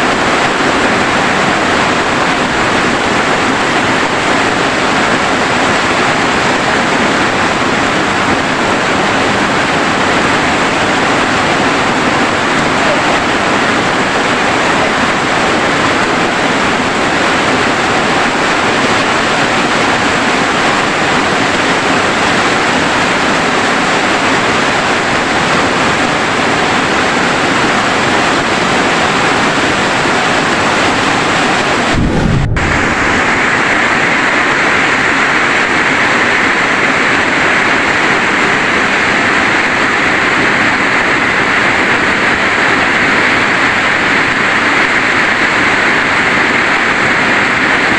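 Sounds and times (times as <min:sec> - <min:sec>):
heavy rain: 0:00.0 - 0:47.9
low thump: 0:31.9 - 0:33.7.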